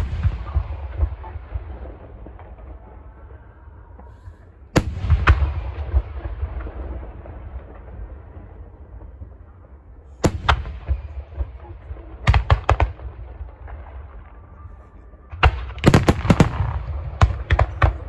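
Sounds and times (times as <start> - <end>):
fireworks bangs: 0.0 - 2.8, 10.2 - 18.0
low booming of fireworks: 0.0 - 18.0.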